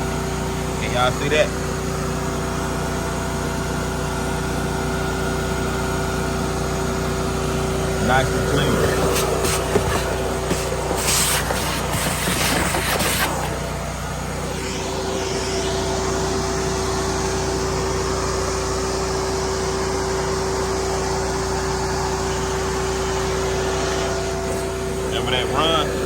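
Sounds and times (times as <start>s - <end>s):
motor drone: 0.0s - 26.0s
short hissing bursts: 8.8s - 13.8s.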